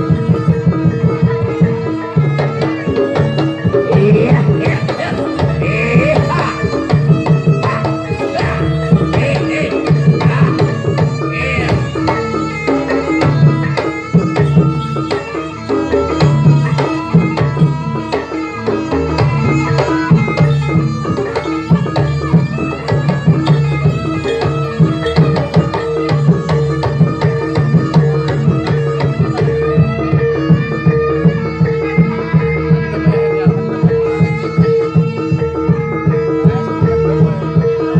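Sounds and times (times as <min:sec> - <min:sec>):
fast hand drumming: 0:00.0 - 0:37.9
gong and metallophone tones: 0:00.0 - 0:37.9.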